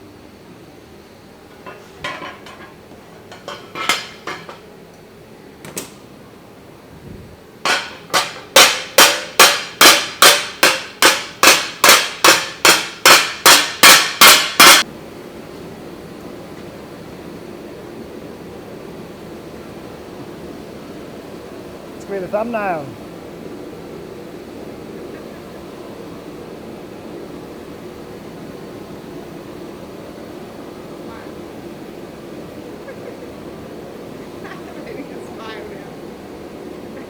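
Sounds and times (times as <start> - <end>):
hammer striking steel on anvil: 7.7 - 14.8.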